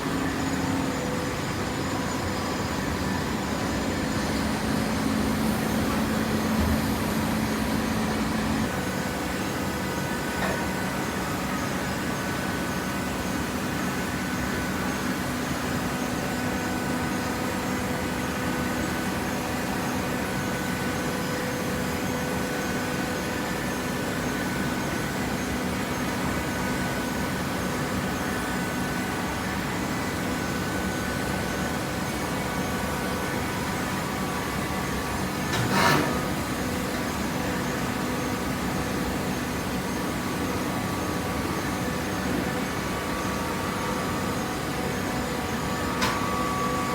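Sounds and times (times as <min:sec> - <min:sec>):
hydraulic baler humming: 0:00.0 - 0:14.2, 0:29.4 - 0:46.9.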